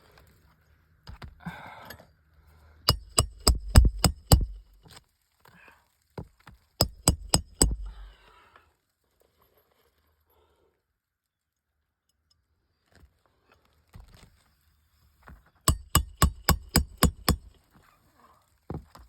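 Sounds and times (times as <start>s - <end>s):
hammer striking roofing nails: 2.9s - 4.6s, 6.8s - 8.1s, 15.7s - 17.5s.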